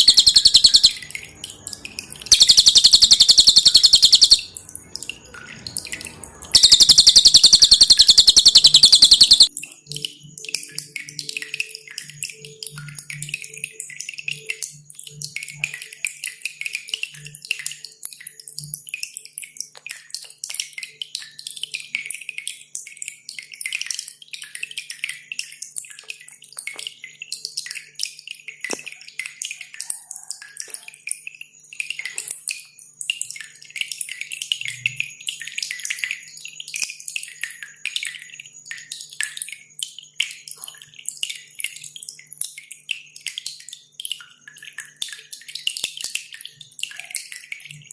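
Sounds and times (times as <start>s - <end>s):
songbird chirping: 0.0s - 9.6s
dripping water: 0.0s - 47.9s.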